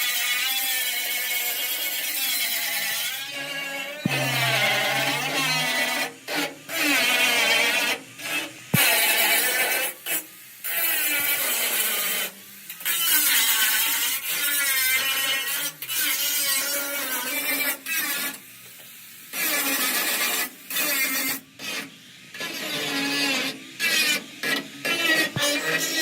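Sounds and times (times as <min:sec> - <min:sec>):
tool scraping and grinding: 0:04.0 - 0:06.9, 0:22.5 - 0:26.0.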